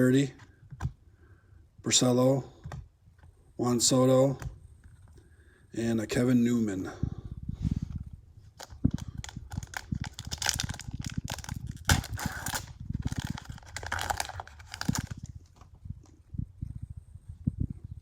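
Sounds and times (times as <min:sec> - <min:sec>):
cards rustling: 0:08.5 - 0:15.7
plastic wrapper tearing and crinkling: 0:08.6 - 0:15.7.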